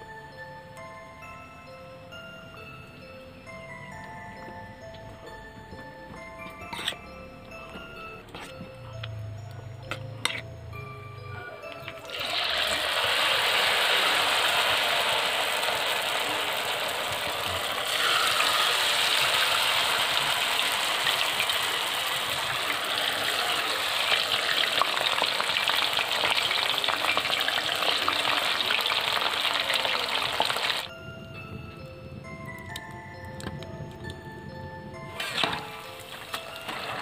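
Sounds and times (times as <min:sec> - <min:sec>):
battered food deep-frying in oil: 0:11.7 - 0:30.9, 0:35.2 - 0:37.0.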